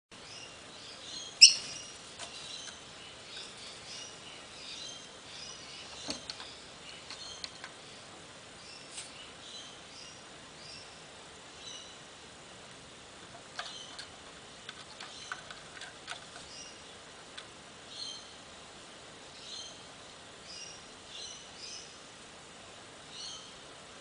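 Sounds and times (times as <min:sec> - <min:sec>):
bird chirping: 0:00.2 - 0:12.1, 0:13.5 - 0:14.2, 0:14.8 - 0:17.1, 0:17.8 - 0:18.4, 0:19.3 - 0:22.0, 0:23.1 - 0:23.6.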